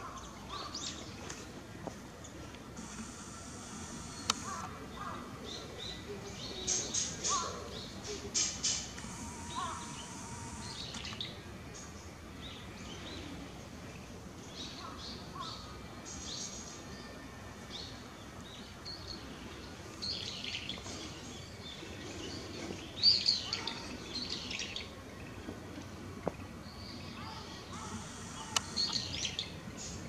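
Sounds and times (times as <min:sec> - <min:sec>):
small birds chirping: 0:02.8 - 0:13.2, 0:26.3 - 0:30.0.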